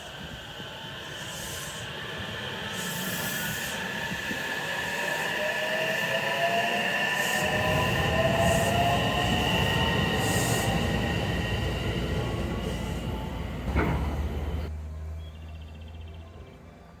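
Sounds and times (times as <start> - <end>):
train rumbling past: 0.0 - 15.2
rising whine: 5.2 - 14.7.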